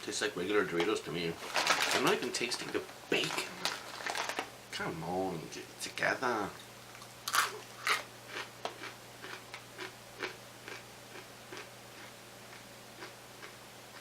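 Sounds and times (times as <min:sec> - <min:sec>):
crunchy chewing of snacks: 0:07.0 - 0:14.0.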